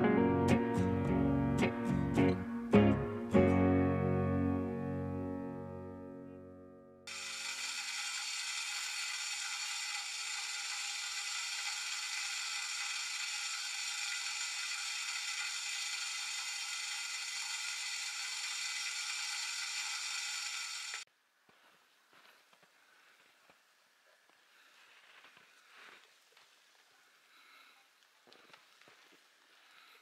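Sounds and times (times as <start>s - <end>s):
gas burner hissing: 7.1s - 21.0s.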